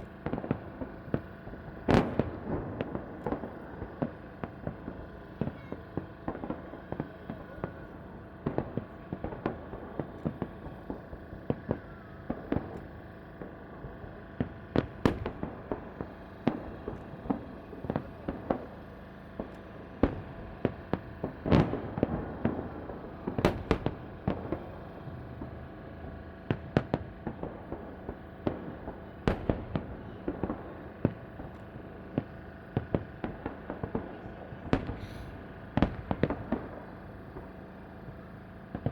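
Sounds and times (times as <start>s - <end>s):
firework shells bursting: 0.0s - 38.9s
fireworks crackling: 0.0s - 38.9s
firework launch thuds: 34.7s - 36.7s.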